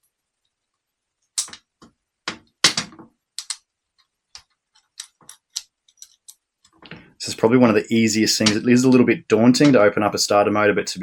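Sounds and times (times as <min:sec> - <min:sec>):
metal parts and tools clicking: 0:04.4 - 0:06.8.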